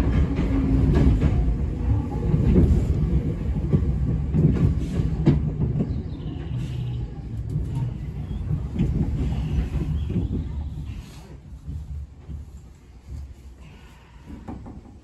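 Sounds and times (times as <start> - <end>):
train rumble inside car: 0.0 - 15.0.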